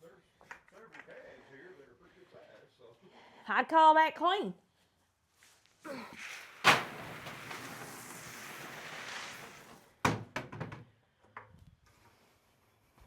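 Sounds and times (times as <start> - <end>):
rushing scrape: 5.9 - 10.0
sharp knocks and clanks: 10.0 - 10.9.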